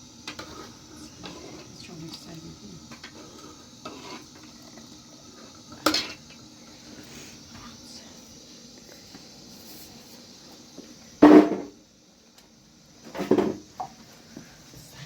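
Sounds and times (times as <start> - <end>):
faint steady background noise: 0.0 - 15.0
knock: 11.2 - 11.7.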